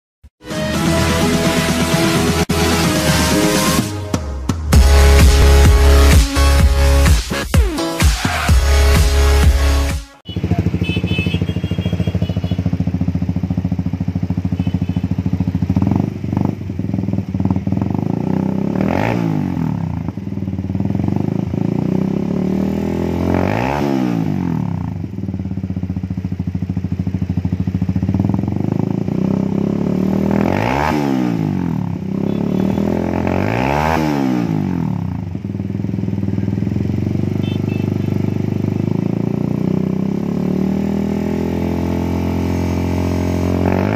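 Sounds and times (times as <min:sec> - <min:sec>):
motorcycle engine idling and revving: 0:00.8 - 0:43.9.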